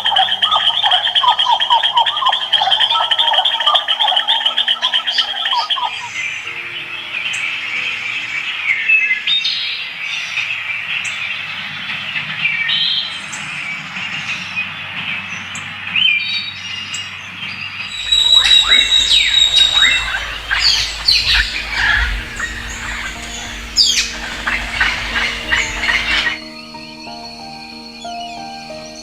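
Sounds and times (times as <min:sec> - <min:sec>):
birds squawking: 0:00.0 - 0:06.4, 0:17.9 - 0:26.8
birds chirping and whistling: 0:00.0 - 0:10.3, 0:17.9 - 0:29.0
steady high hiss: 0:17.9 - 0:29.0.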